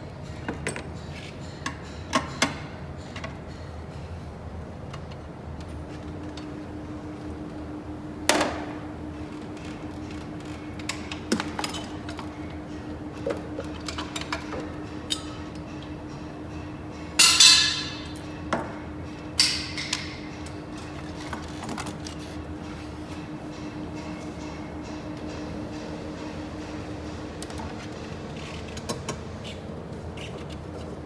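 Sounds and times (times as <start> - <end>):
steady hum: 6.2 - 31.0
loud ringing metallic clank: 15.1 - 18.5, 19.3 - 20.8.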